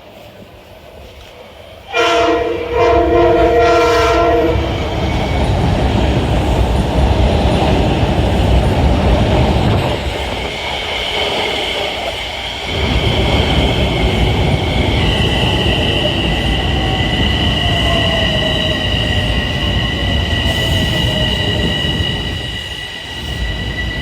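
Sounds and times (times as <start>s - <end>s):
train wheels rumbling on rails: 0.0s - 24.0s
train horn blasts: 1.9s - 4.9s
high squeal: 2.1s - 6.6s, 9.8s - 24.0s.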